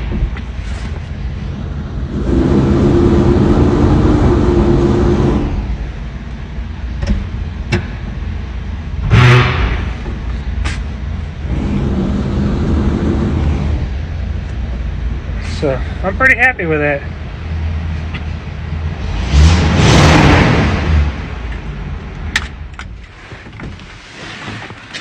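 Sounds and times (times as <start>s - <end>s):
truck engine running: 0.0s - 23.6s
loud metal clank: 9.0s - 10.3s.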